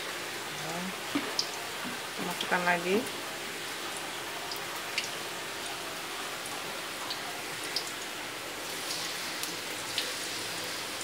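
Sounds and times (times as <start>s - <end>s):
fish deep-frying in hot oil: 0.0s - 11.0s
sharp oil crackles: 7.0s - 11.0s.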